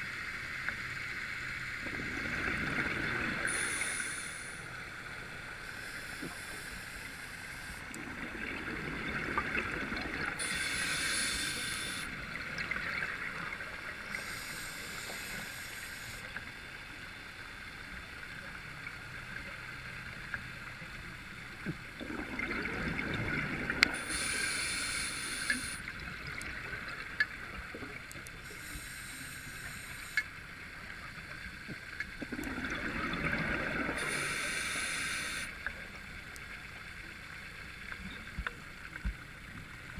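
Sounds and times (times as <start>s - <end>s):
exhaled bubbles: 1.8s - 4.0s, 7.9s - 13.7s, 21.9s - 24.6s, 32.2s - 34.5s
diver breathing through regulator: 3.4s - 4.7s, 10.4s - 12.1s, 14.2s - 16.2s, 24.0s - 25.8s, 28.4s - 30.2s, 34.0s - 35.6s.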